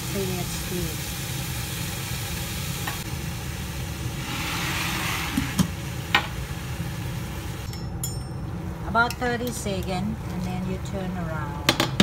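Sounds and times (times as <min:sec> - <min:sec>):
food sizzling in covered pot: 0:00.0 - 0:07.7.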